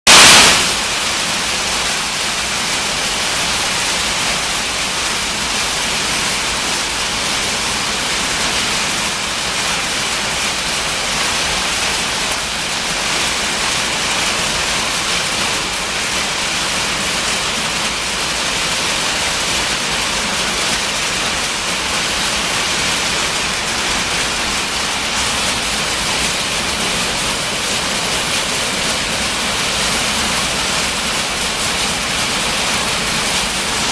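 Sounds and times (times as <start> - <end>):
hail drumming on metal roof: 0.1 - 33.9.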